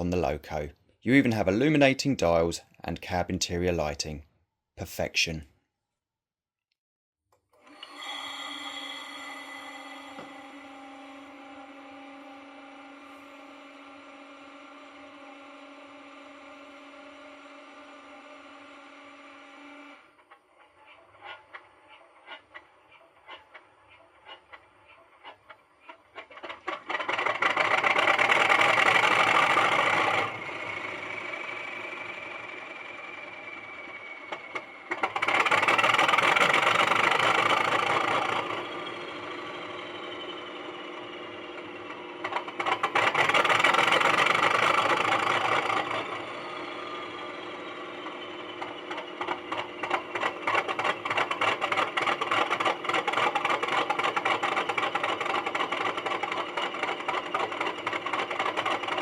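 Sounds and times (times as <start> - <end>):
model diesel engine sound from speaker: 0.0 - 5.5, 7.6 - 59.0
faint falling whine: 7.6 - 20.2, 38.4 - 42.3, 45.6 - 50.4.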